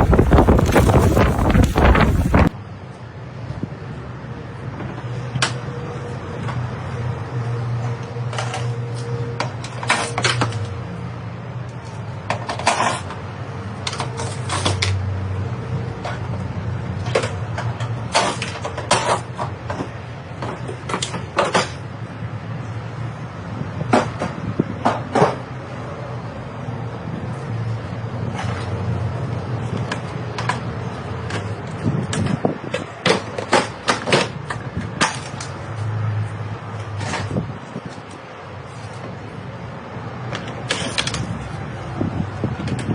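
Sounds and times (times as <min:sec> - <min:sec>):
machinery engine hum: 0:00.0 - 0:02.5.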